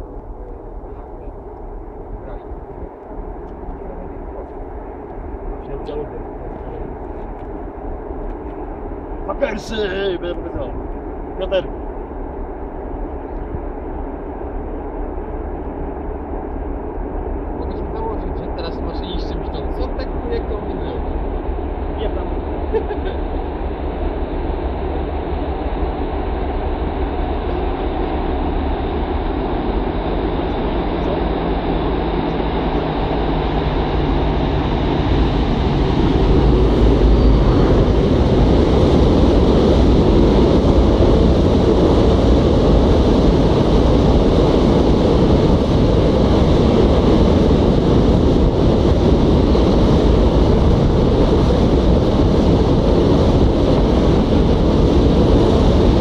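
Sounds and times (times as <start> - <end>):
diesel locomotive engine passing: 15.4 - 56.0.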